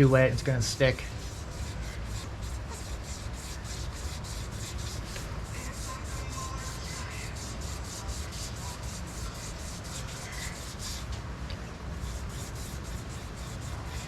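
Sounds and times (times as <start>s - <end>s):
wet sandpaper rasping on metal: 0.9s - 11.1s, 12.0s - 14.0s.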